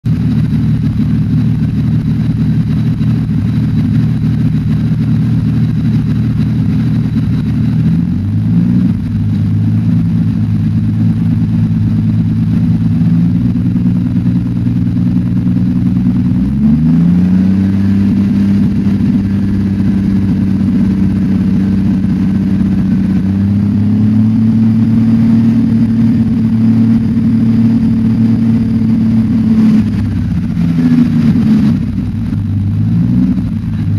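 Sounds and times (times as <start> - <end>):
engine running with a misfire: 0.0 - 33.9.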